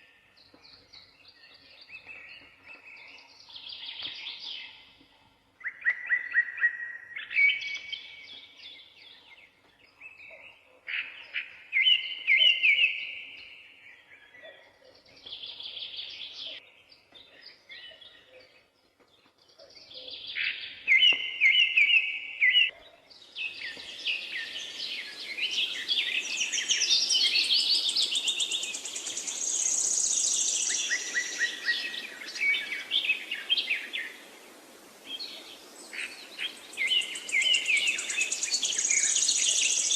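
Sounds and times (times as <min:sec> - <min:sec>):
songbirds singing: 0:00.0 - 0:39.9
steady hiss: 0:24.0 - 0:39.9.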